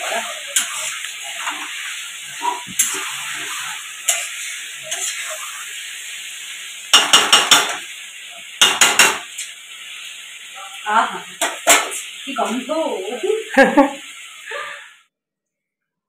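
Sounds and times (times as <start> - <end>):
chicken sizzling in a pan: 0.0 - 15.1
metal spatula scraping and knocking: 0.1 - 5.5, 6.9 - 7.8, 8.6 - 9.4.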